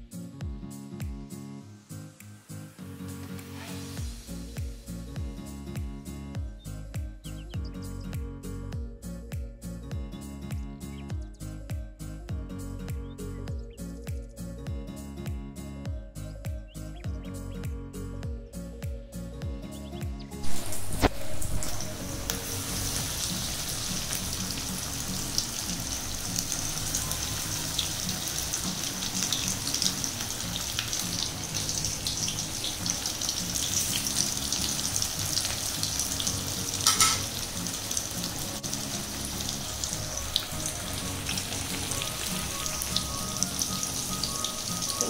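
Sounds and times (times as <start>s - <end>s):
chicken frying in hot oil: 20.4s - 45.0s.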